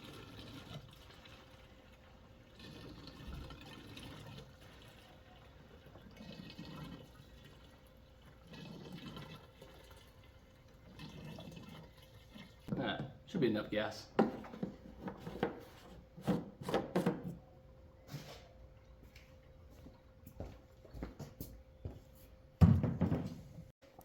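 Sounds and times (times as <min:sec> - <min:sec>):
liquid pouring into fuel tank: 0:00.0 - 0:12.7.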